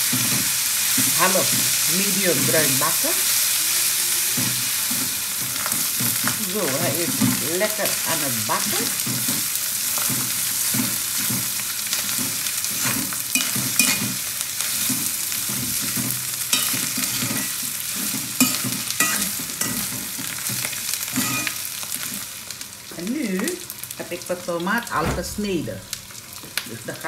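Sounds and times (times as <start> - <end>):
food sizzling in hot oil: 0.0 - 27.0
spoon scraping a pan: 12.0 - 22.2.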